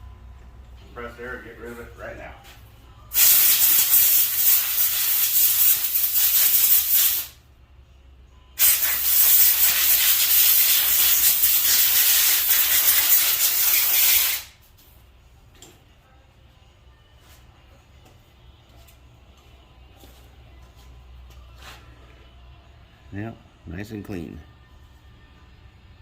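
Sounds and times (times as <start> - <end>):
compressed air hissing: 3.1 - 7.4, 8.6 - 14.6.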